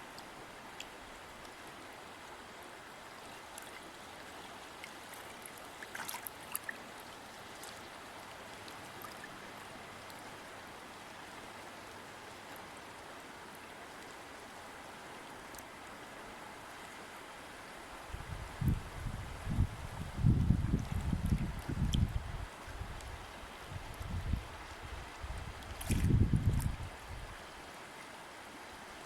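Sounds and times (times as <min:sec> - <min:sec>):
stream water flowing: 0:00.0 - 0:29.0
small splashes and droplet clicks: 0:03.5 - 0:03.8, 0:04.8 - 0:06.8, 0:07.5 - 0:09.3, 0:20.8 - 0:22.1, 0:25.6 - 0:26.7.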